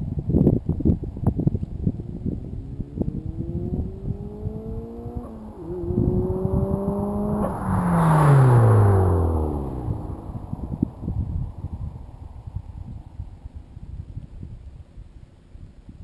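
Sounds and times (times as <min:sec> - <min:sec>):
car accelerating past: 0:01.8 - 0:12.0.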